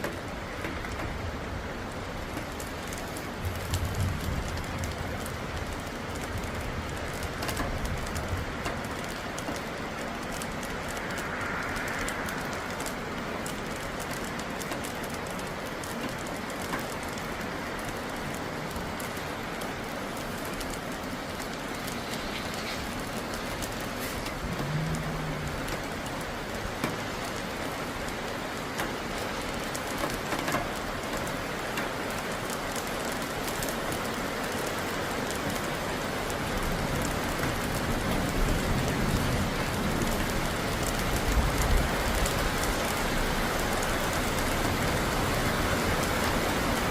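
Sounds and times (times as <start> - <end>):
heavy rain pattering: 0.0 - 46.9
thunder rumbling: 0.7 - 15.6, 18.9 - 28.3.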